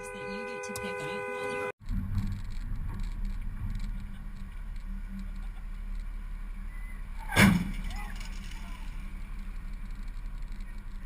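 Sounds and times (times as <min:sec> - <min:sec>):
vehicle engine and road rumble: 0:00.0 - 0:11.0
loud thump: 0:07.2 - 0:08.1.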